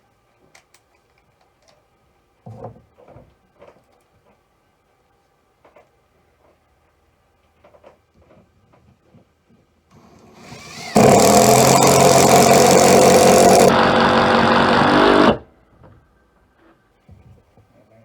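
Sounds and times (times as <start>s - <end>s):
impact driver hammering: 10.4s - 15.4s.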